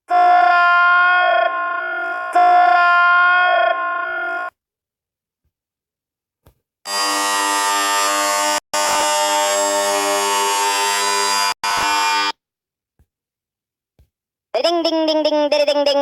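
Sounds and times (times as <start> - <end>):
harsh buzzing tone: 6.9 - 12.4.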